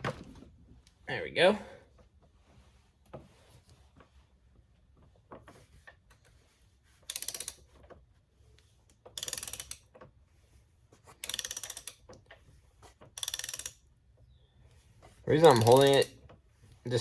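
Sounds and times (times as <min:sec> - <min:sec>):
ratchet wrench clicking: 0:07.1 - 0:07.6, 0:09.1 - 0:09.9, 0:11.2 - 0:12.1, 0:13.2 - 0:13.9, 0:15.3 - 0:16.1.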